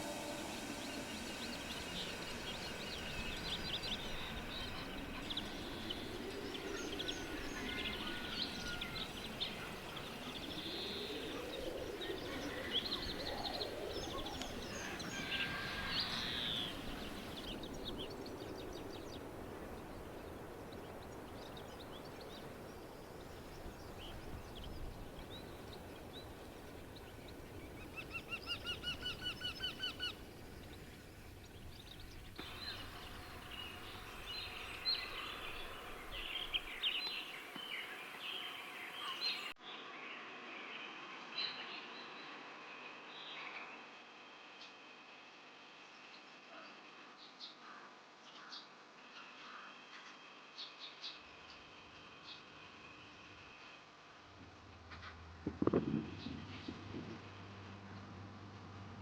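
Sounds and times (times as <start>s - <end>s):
bird song of chirps and trills: 0.0s - 44.9s.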